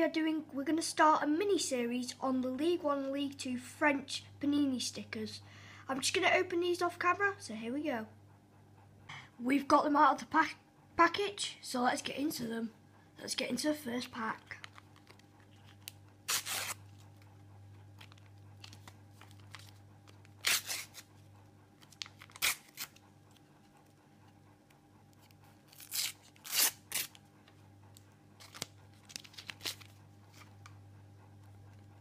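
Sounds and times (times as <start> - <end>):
foil wrapper tearing and crinkling: 14.6 - 17.0, 18.0 - 21.1, 21.8 - 23.0, 25.7 - 27.2, 28.4 - 30.5.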